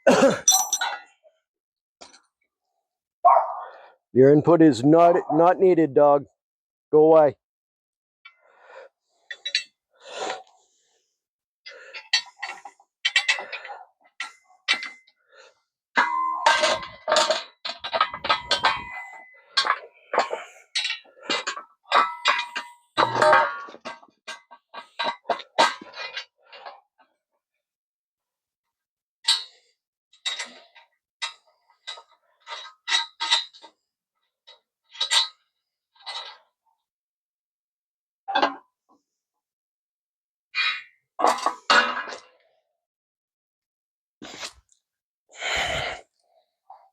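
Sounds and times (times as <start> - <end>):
metal hand tools clanking: 0.4 - 1.0, 16.0 - 20.4
metal hand tools clinking: 0.4 - 1.0.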